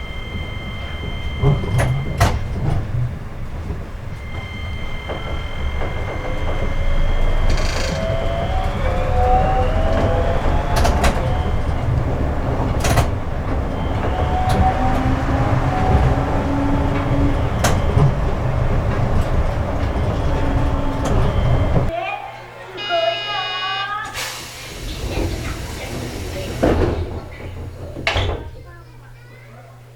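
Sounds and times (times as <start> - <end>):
inverter whining: 0.0 - 21.9
low rumble of train running: 0.0 - 22.0, 24.2 - 29.9.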